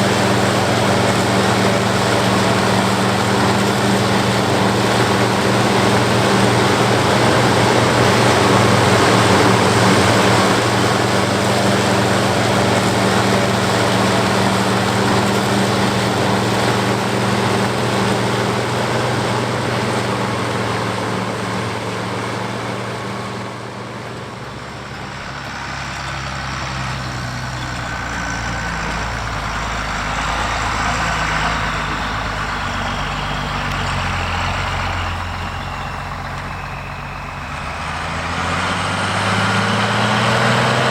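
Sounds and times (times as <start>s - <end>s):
forage harvester chopping: 0.0s - 29.0s
tractor diesel engine under load: 0.0s - 40.9s.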